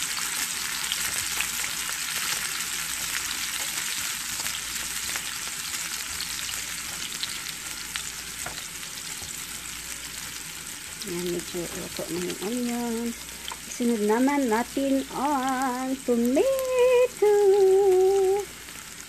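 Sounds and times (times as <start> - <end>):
onion sizzling in hot oil: 0.0 - 19.0
spatula stirring in pan: 0.8 - 13.8.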